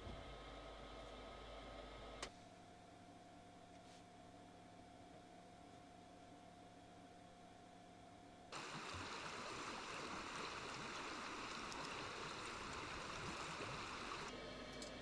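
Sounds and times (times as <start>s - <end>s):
faint steady hum: 0.0s - 15.0s
stream water rushing: 8.6s - 14.3s.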